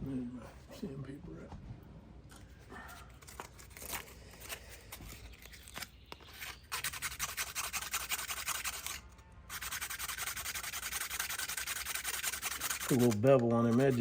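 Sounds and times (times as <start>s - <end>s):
sandpaper sanding metal: 6.3s - 14.0s.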